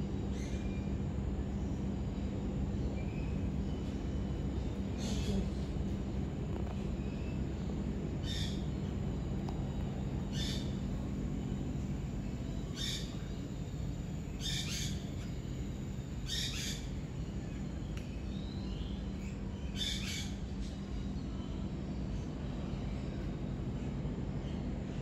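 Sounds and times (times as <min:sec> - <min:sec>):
steady low hum: 0:00.0 - 0:25.0
bird calling: 0:04.9 - 0:05.8, 0:08.2 - 0:11.4, 0:12.3 - 0:17.1.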